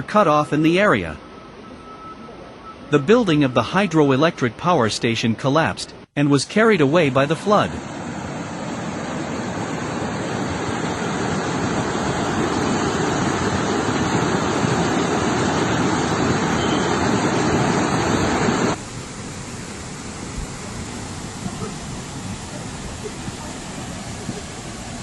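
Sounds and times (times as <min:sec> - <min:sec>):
rushing floodwater: 0:06.2 - 0:25.0.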